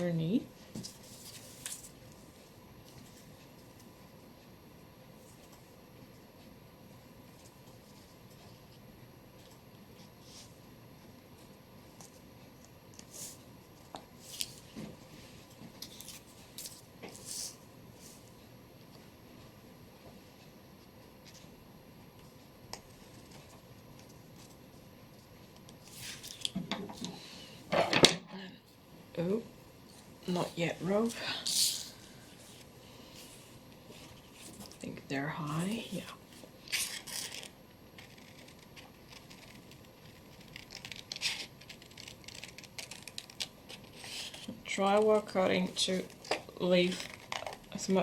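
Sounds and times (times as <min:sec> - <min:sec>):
scissors snipping paper: 0:36.8 - 0:45.2.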